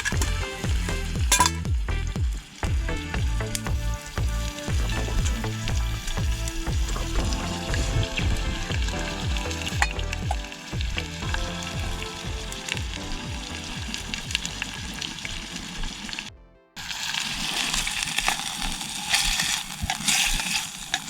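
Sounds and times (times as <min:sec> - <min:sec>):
background music with low beat: 0:00.0 - 0:16.8
food sizzling in a pan: 0:04.0 - 0:21.0
stirring in a pan: 0:16.8 - 0:21.0.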